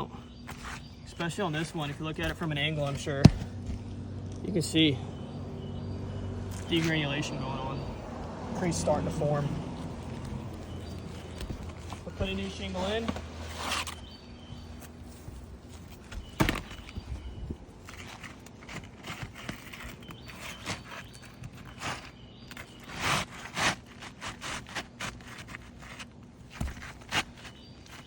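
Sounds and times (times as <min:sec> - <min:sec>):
shingle knocks and scrapes on roof: 0:15.8 - 0:17.1, 0:17.8 - 0:28.0.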